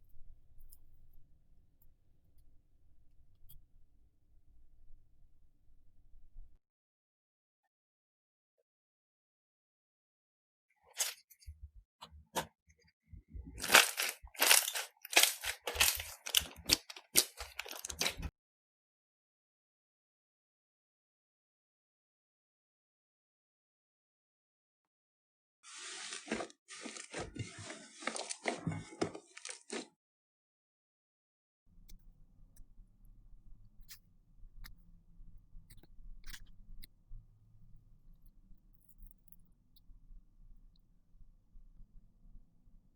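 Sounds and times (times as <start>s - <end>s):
slime crackling and popping: 13.6s - 18.3s
sharp clicks and pops: 35.7s - 36.9s.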